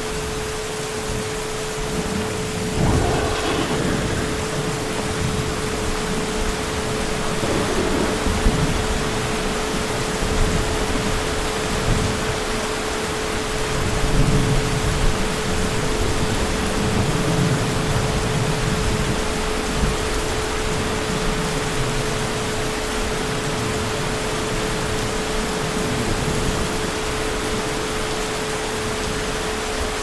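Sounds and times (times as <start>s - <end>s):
heavy rain: 0.0s - 30.0s
distant thunder rumble: 1.9s - 11.0s.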